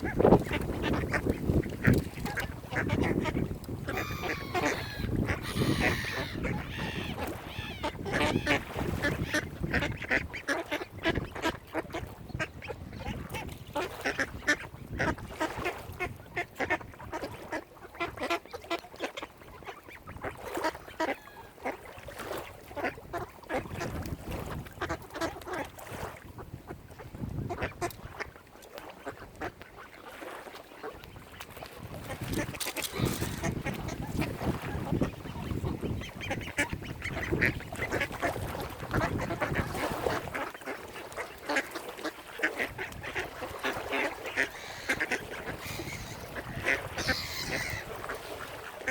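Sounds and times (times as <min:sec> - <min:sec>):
flock of waterfowl calling: 0:00.1 - 0:11.6, 0:18.0 - 0:21.8, 0:32.3 - 0:48.9.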